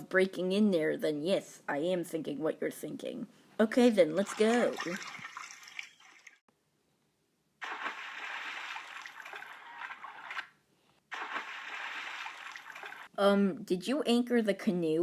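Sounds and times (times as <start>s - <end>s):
water splashing and trickling: 4.0s - 6.5s, 7.6s - 10.5s, 11.1s - 13.1s.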